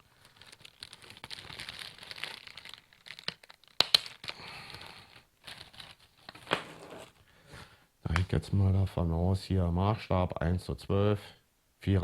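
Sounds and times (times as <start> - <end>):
packaging crinkling: 0.0 - 7.2.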